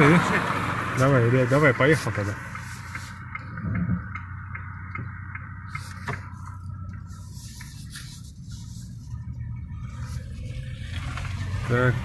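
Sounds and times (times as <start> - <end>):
car engine hum from cabin: 0.0 - 12.0.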